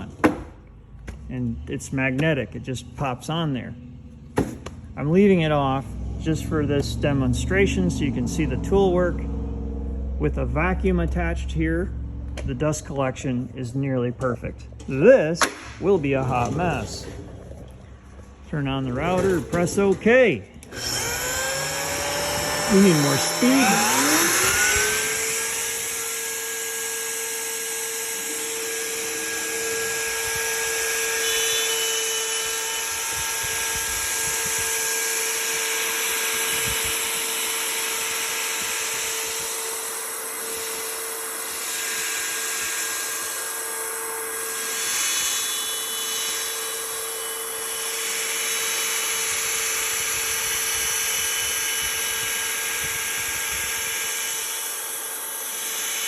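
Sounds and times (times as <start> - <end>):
router spindle whine: 5.2 - 56.0
router bit cutting board: 20.7 - 56.0.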